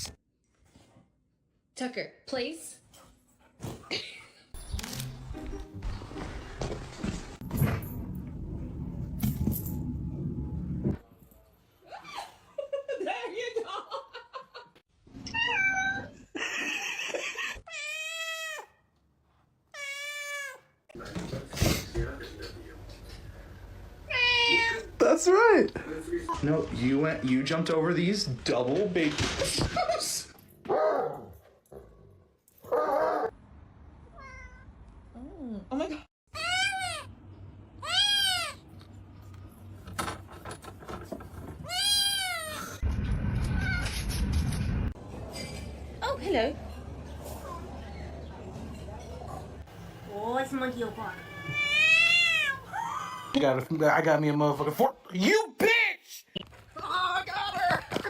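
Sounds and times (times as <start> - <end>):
cat meowing: 15.3 - 16.1, 34.2 - 34.7, 37.8 - 38.6, 41.6 - 42.8, 51.1 - 52.7
low rumbling noise: 42.8 - 46.0.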